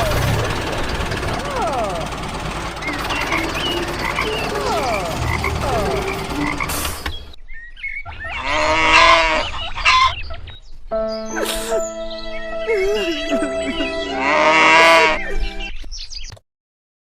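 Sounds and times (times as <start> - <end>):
loud drawn-out animal call: 8.1 - 10.2, 14.1 - 15.3.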